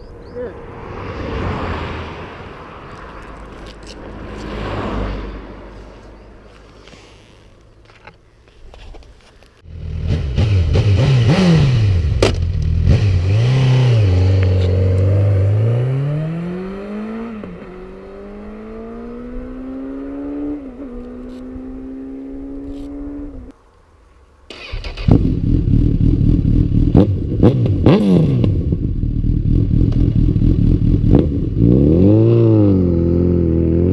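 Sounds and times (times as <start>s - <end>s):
motorcycle engine revving: 9.6s - 23.5s, 24.5s - 33.9s
motorcycle pulling away: 9.7s - 23.5s, 24.5s - 33.9s.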